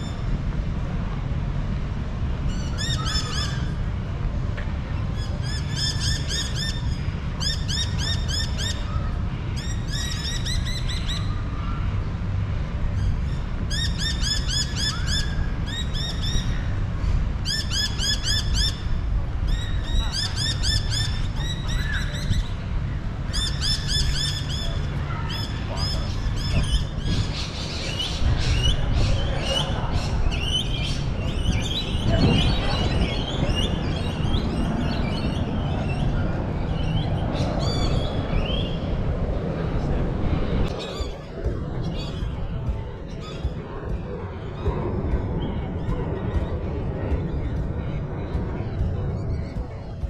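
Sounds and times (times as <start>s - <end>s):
steady low rumble: 0.0s - 50.0s
birds chirping: 2.3s - 50.0s.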